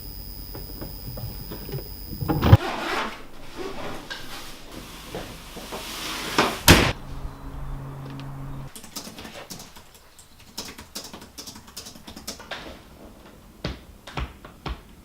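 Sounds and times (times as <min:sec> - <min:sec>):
rustling and shuffling: 0:00.3 - 0:07.3
loud bang of door shutting: 0:06.6 - 0:07.1.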